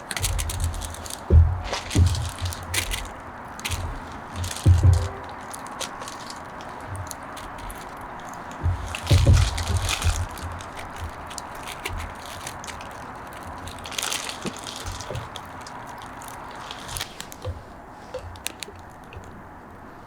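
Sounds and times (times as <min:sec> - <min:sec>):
bonfire crackling and popping: 0:00.0 - 0:17.6
soft low thumps: 0:00.2 - 0:15.4.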